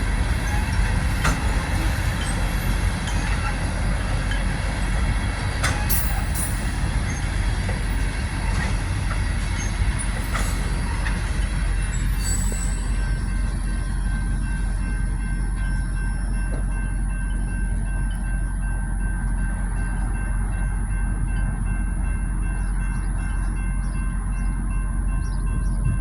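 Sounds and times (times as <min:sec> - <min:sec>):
train wheels rumbling on rail: 0:00.0 - 0:26.0
faint wheel squeal: 0:12.0 - 0:13.0.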